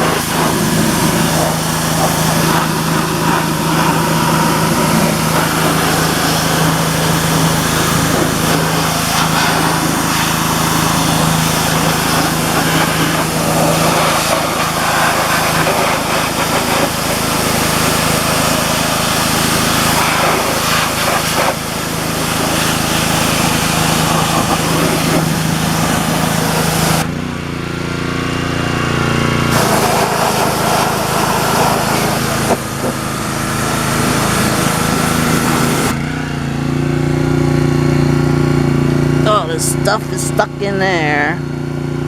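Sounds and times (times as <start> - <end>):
water jet hissing: 0.0 - 27.1, 29.5 - 36.0
small engine running steadily: 0.0 - 42.0.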